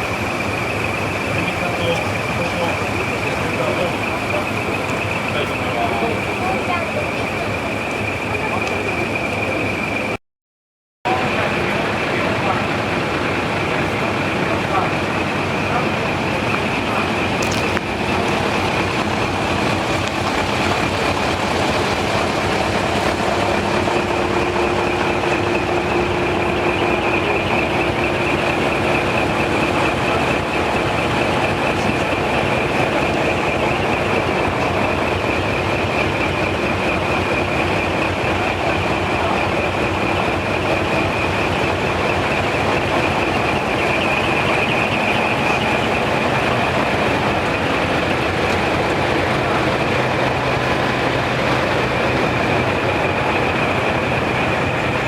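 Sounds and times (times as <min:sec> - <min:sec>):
diesel truck engines rumbling: 0:00.0 - 0:10.2, 0:11.1 - 0:55.0
high-pitched whine: 0:11.1 - 0:55.0.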